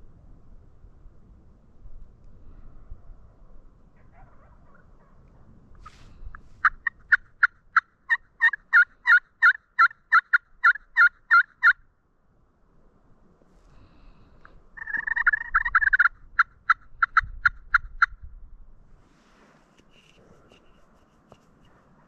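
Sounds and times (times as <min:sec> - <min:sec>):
turkey yelps: 0:04.0 - 0:11.8, 0:14.8 - 0:18.2.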